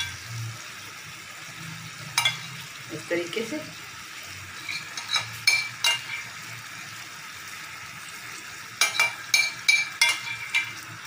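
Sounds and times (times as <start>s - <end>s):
food sizzling in a grill pan: 0.0s - 11.0s
utensil clinking against pan: 4.6s - 6.3s, 8.8s - 10.8s.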